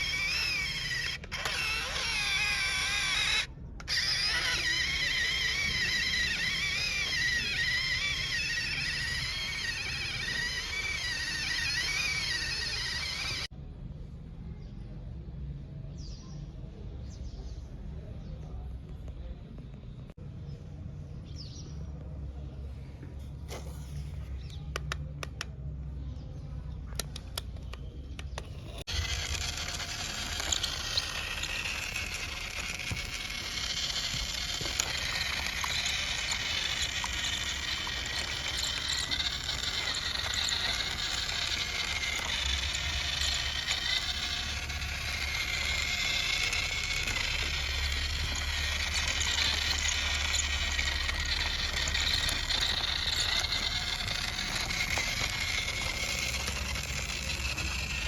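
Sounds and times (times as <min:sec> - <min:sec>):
toy motor and gears whirring: 0:00.0 - 0:13.6, 0:26.7 - 0:58.0
clicks: 0:26.9 - 0:58.0.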